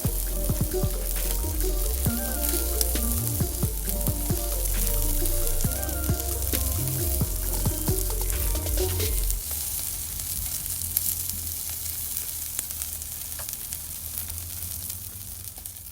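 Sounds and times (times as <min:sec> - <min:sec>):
background music: 0:00.0 - 0:09.7
fire crackles: 0:00.0 - 0:15.9
chicken skewers sizzling over fire: 0:08.1 - 0:15.9.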